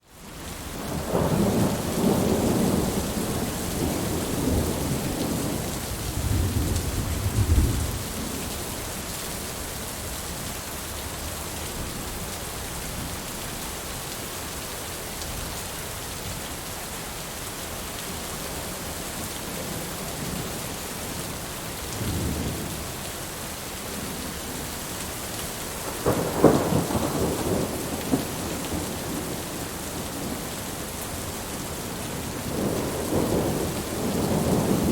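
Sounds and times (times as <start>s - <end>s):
steady rain: 0.0s - 34.9s
rolling thunder: 0.9s - 8.4s, 25.8s - 30.6s, 32.2s - 34.9s.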